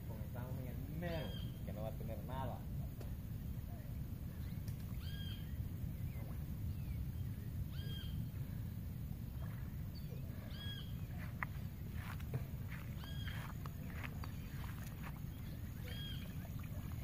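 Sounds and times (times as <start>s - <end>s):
bird call: 1.0s - 1.7s, 4.4s - 6.3s, 7.7s - 8.3s, 9.9s - 11.4s, 12.0s - 17.0s
faint bird chirps: 1.0s - 1.9s, 3.4s - 17.0s.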